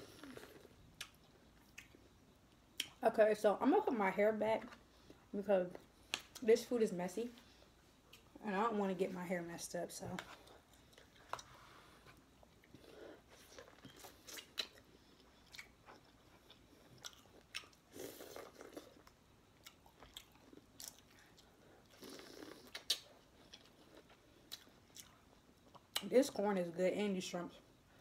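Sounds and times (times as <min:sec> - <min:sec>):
chewing corn on the cob: 0:12.1 - 0:26.1.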